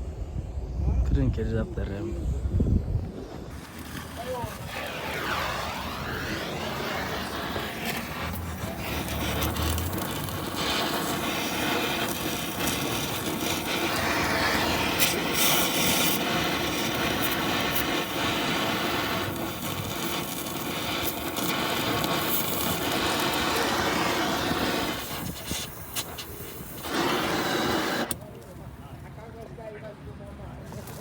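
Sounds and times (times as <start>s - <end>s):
van engine and road noise: 7.0s - 11.5s.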